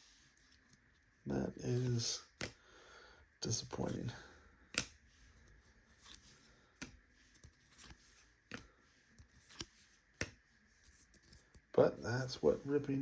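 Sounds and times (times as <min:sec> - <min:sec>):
trading cards flicking: 0:01.8 - 0:02.6, 0:04.7 - 0:05.0, 0:06.8 - 0:10.4.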